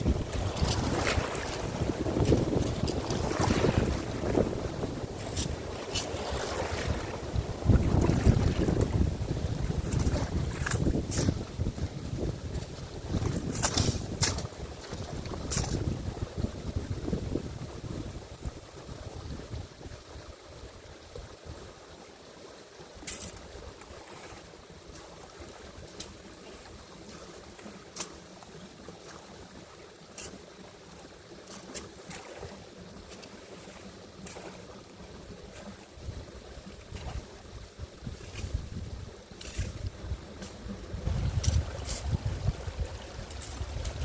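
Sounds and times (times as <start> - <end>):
wind on microphone: 0.0 - 20.8, 36.0 - 44.0
stream water running: 0.0 - 44.0.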